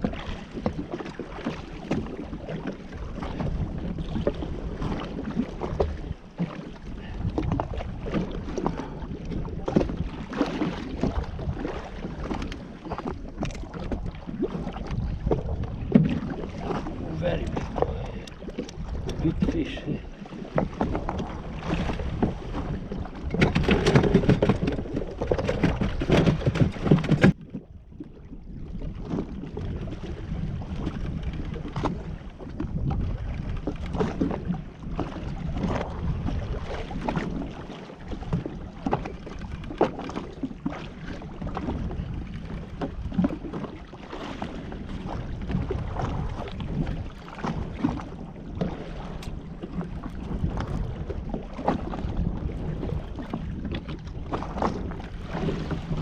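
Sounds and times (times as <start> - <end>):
water splashing around jet ski: 0.0 - 56.0
wind buffeting microphone: 0.0 - 56.0.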